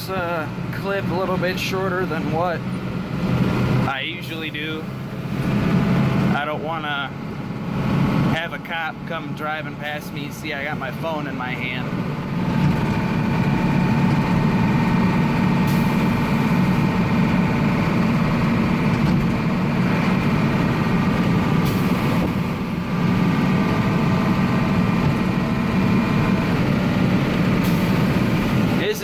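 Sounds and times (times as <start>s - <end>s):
truck engine and road drone: 0.0s - 29.0s.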